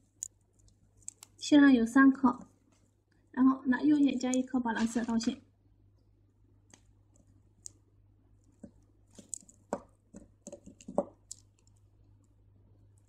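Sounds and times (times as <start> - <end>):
beads clicking together: 0.0 - 1.4, 8.4 - 11.8.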